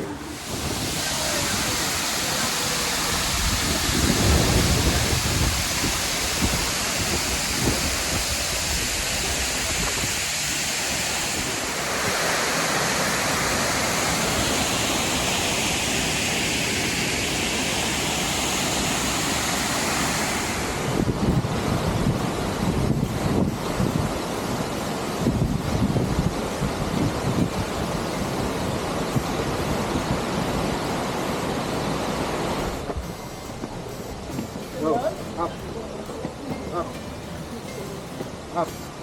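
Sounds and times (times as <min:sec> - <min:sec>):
waterfall rushing: 0:00.0 - 0:39.0
wind buffeting microphone: 0:03.2 - 0:10.2, 0:20.8 - 0:33.1.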